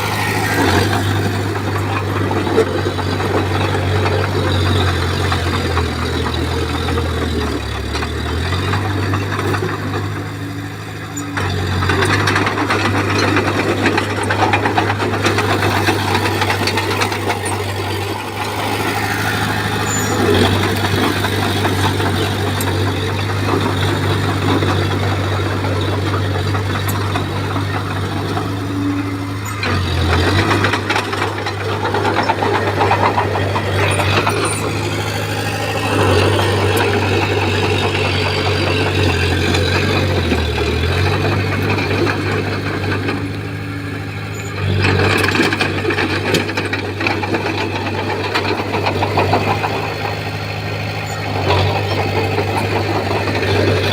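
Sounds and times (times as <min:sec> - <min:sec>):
bulldozer diesel engine running: 0:00.0 - 0:53.9
dense clatter: 0:11.4 - 0:28.7.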